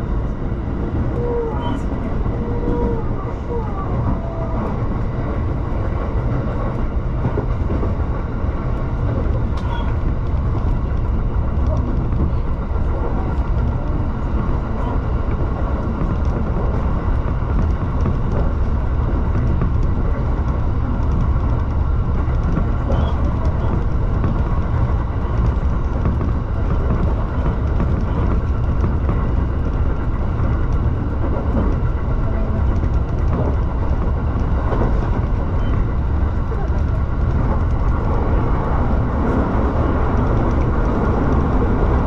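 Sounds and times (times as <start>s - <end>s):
electric train running rumble: 0.0s - 42.0s.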